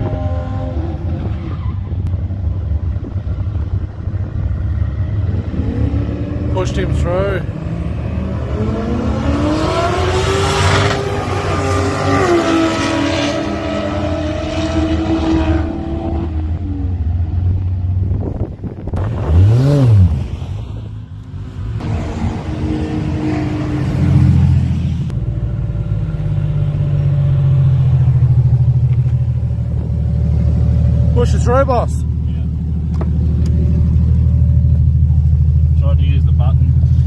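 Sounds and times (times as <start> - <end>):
drag cars accelerating: 4.2 - 17.4
car revving past: 4.9 - 16.6, 21.5 - 25.1
car engine idling: 21.2 - 37.0.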